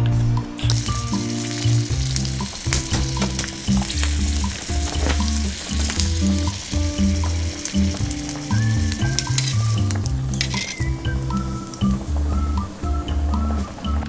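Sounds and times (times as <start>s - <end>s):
background music with bass: 0.0s - 14.0s
sausages sizzling in oil: 0.6s - 13.7s.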